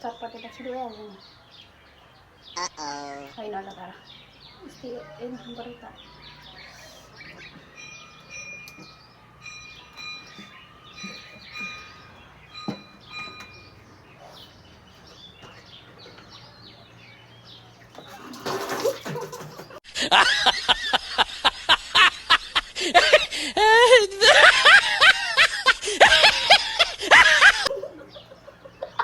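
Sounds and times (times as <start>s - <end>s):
birds chirping faintly: 0.0s - 29.0s
loud laughing in bursts: 2.6s - 3.4s, 18.8s - 29.0s.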